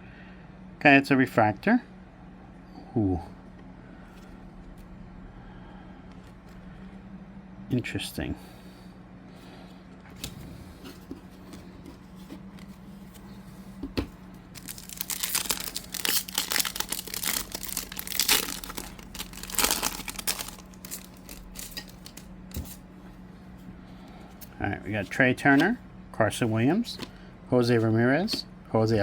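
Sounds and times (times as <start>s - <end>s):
wrapper tearing and crinkling: 14.6s - 22.3s.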